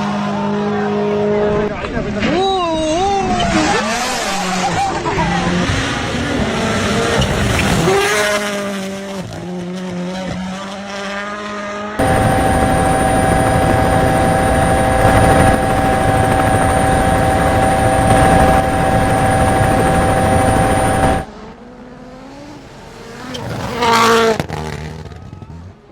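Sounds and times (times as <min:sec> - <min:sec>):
steady engine note: 0:12.0 - 0:21.3.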